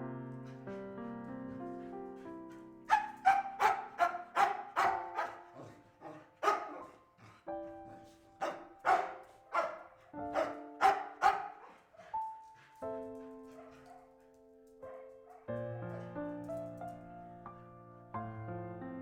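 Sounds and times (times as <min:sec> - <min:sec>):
soft background music: 0:00.0 - 0:19.0
dog barking: 0:02.9 - 0:16.1.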